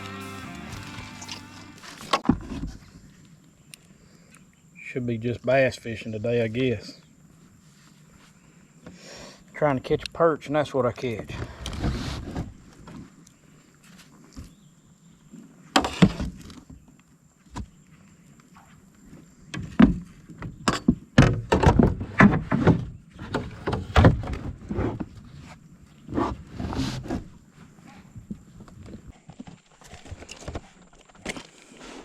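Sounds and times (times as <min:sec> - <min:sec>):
faint high whine: 0:00.0 - 0:02.2
knocks and rattles on plastic kayak: 0:19.5 - 0:27.4.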